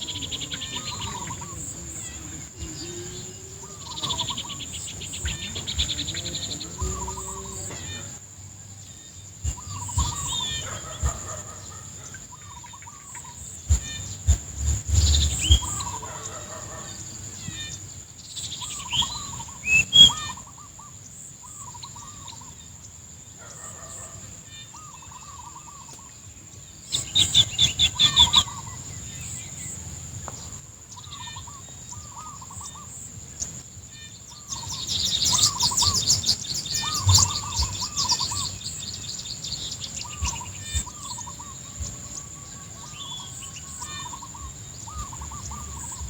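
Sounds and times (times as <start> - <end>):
birds chirping: 0.0 - 46.0
low thumps: 13.7 - 15.9.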